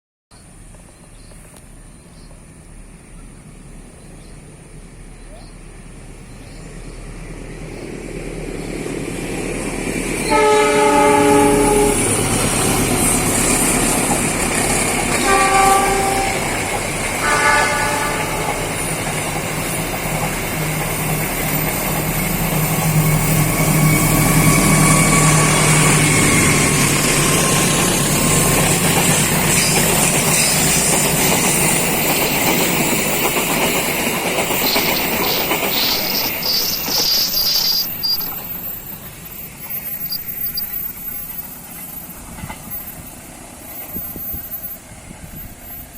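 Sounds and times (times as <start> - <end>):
train carriages rumbling past: 0.4 - 45.9
locomotive horn blasts: 10.2 - 12.3, 15.1 - 18.7.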